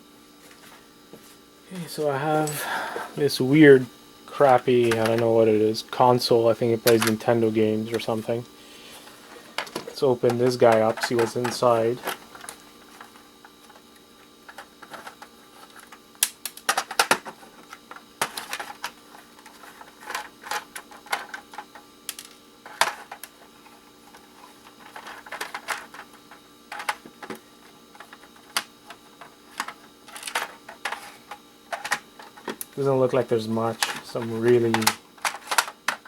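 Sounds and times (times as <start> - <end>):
plastic casing clicks and clacks: 34.7 - 36.0.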